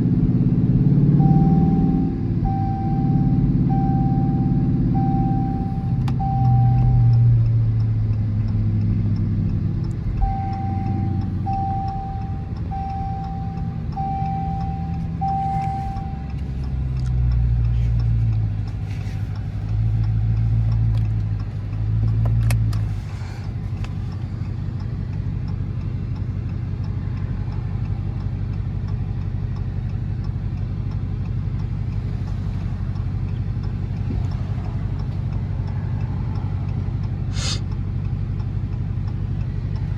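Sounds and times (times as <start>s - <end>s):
single-tone beeping chime: 1.2s - 7.2s, 10.2s - 16.5s
car engine idling: 1.2s - 39.9s.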